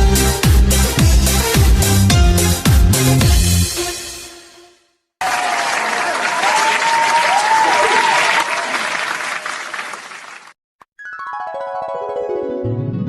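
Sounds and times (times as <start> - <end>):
crowd applause and cheering: 5.2 - 10.6.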